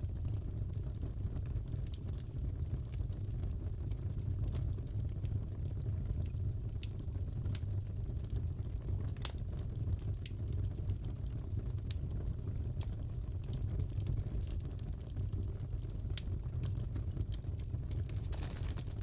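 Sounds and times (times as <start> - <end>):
fireplace fire crackling: 0.0 - 19.0.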